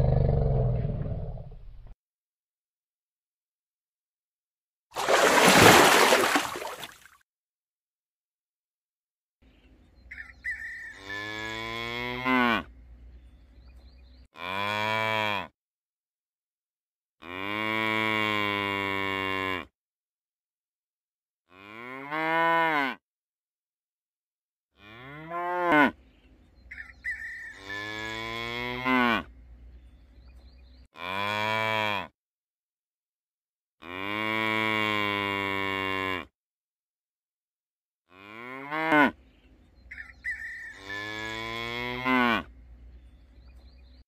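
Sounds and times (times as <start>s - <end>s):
cattle mooing: 11.0s - 12.7s, 21.5s - 23.0s, 27.6s - 29.3s, 33.8s - 36.3s, 40.8s - 42.5s.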